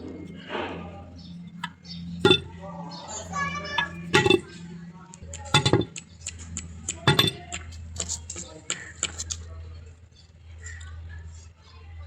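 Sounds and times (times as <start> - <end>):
machinery humming: 0.0 - 8.2.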